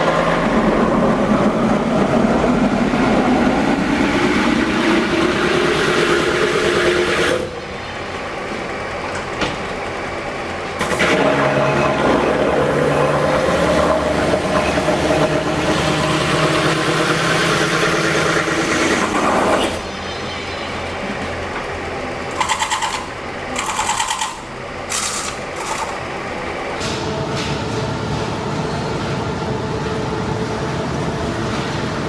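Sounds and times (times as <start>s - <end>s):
loud factory machinery: 0.0s - 32.0s
fast machine rattle: 22.3s - 26.2s.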